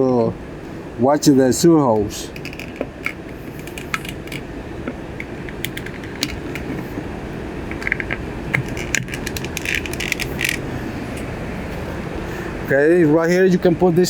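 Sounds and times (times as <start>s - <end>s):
low background rumble: 0.0s - 14.0s
hard fittings clicking and rattling: 1.9s - 11.3s.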